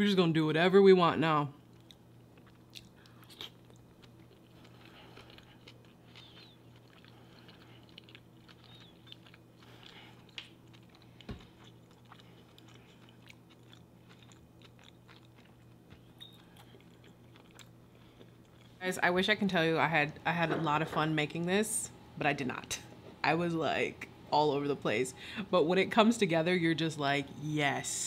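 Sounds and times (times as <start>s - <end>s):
steady low hum: 0.0s - 28.0s
chewing with wet mouth clicks: 1.7s - 18.8s.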